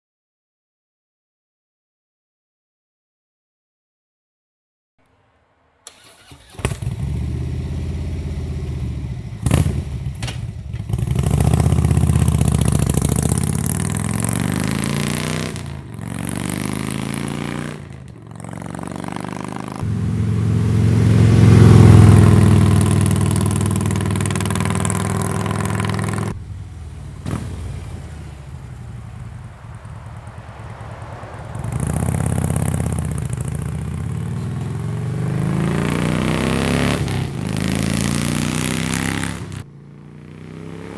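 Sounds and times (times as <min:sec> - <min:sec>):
motorcycle engine revving: 0:05.8 - 0:40.9.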